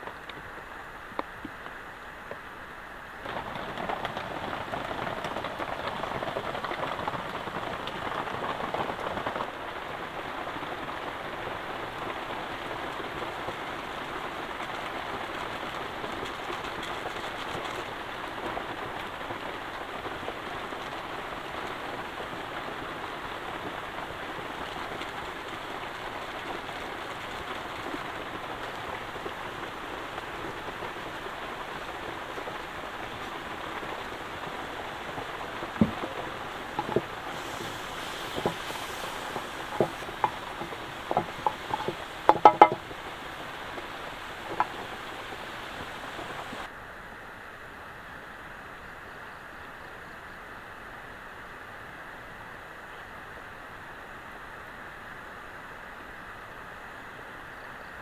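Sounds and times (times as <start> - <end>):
heavy rain falling: 3.2 - 46.7.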